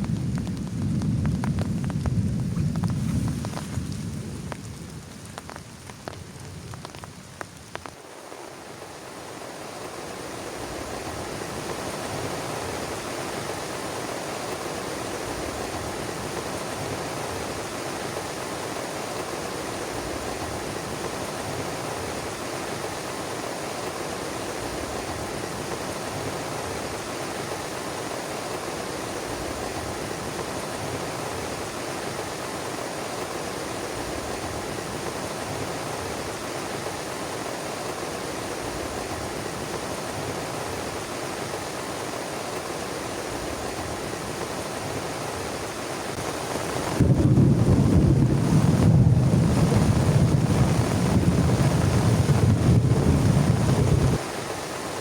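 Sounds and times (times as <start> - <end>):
thunder rumble: 0.0 - 7.2, 14.5 - 17.6, 46.3 - 54.2
heavy rain: 0.0 - 55.0.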